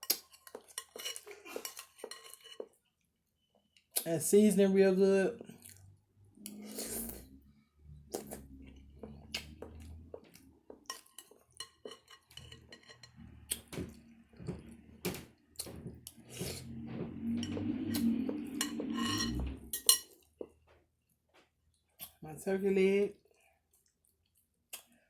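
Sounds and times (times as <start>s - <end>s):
utensils clinking on a plate: 0.0s - 2.8s, 10.8s - 16.0s, 18.6s - 20.2s.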